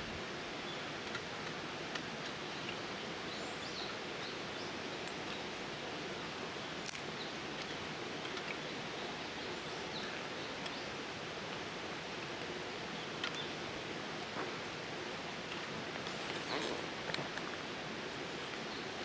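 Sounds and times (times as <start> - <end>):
steady outdoor hiss: 0.0 - 19.0
faint clicks and rustles: 5.0 - 19.0.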